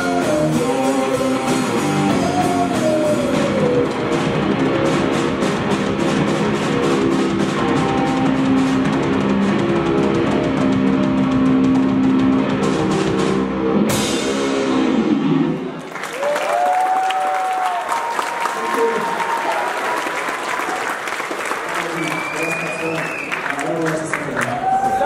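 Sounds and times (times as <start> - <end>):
live rock band playing: 0.0 - 15.8.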